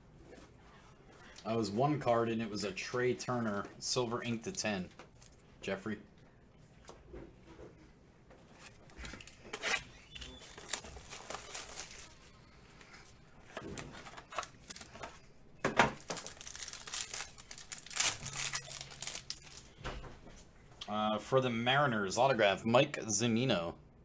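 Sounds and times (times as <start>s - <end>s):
card wrappers crinkling and tearing: 8.6s - 19.8s.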